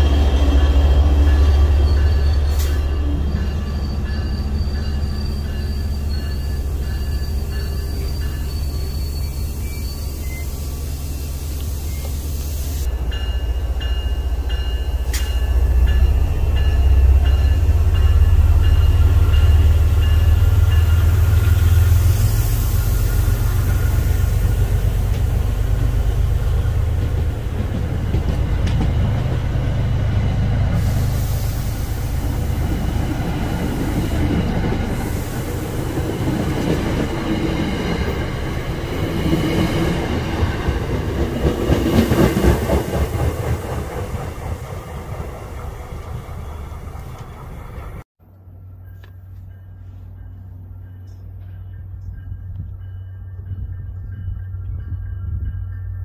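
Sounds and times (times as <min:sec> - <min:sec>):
high squeal: 0:00.0 - 0:13.5
train passing rumble: 0:00.0 - 0:56.0.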